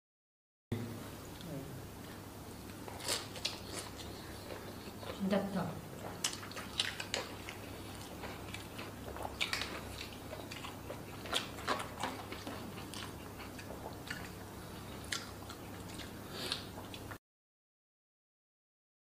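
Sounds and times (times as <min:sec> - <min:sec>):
faint steady hum: 0:00.7 - 0:17.2
close-up chewing: 0:02.6 - 0:17.2.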